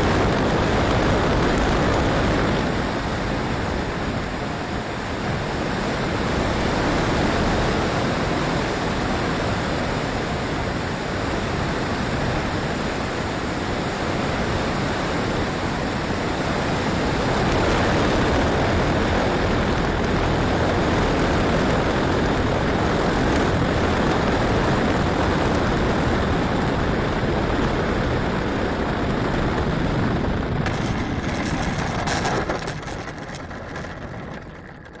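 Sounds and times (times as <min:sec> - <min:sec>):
strong wind rushing: 0:00.0 - 0:05.4, 0:16.7 - 0:35.0.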